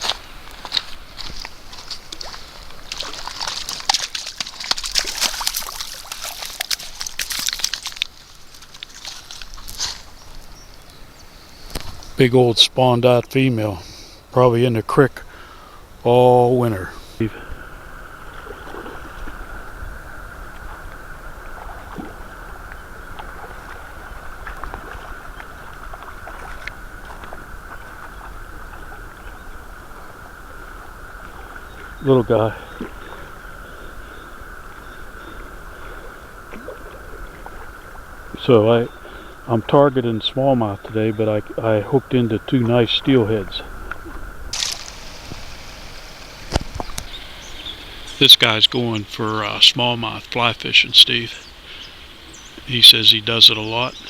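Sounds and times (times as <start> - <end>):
fish thrashing and splashing in water: 0.0 - 10.6, 18.1 - 32.0, 43.8 - 47.2
faint ticks: 11.6 - 12.2
wind rumble on microphone: 17.2 - 47.8.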